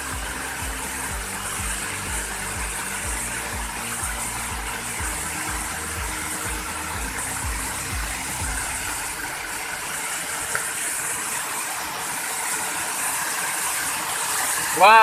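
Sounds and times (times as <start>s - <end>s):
background music beat: 0.0s - 11.0s
waterfall rushing: 0.0s - 15.0s.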